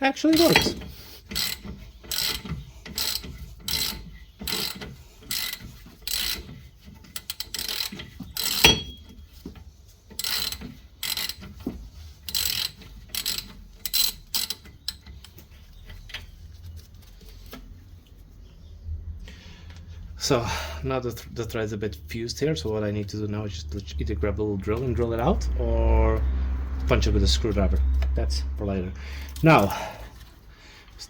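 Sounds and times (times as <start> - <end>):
hand ratchet clicking: 0.3 - 9.4, 10.1 - 15.6.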